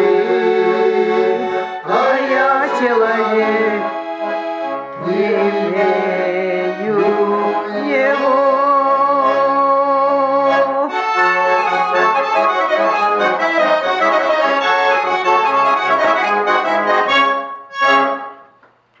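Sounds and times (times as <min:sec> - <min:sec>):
button accordion playing melody: 0:00.0 - 0:18.5.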